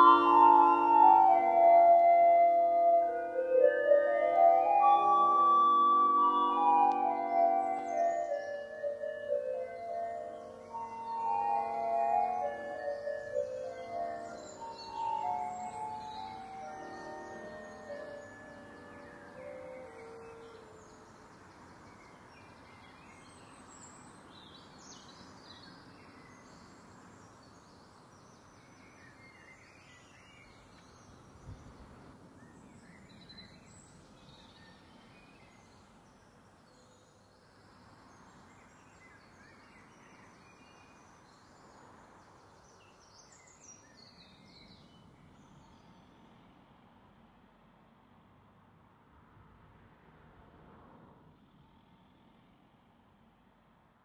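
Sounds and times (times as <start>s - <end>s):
birds chirping and singing: 0.0s - 21.2s
low steady background hiss: 0.0s - 49.0s.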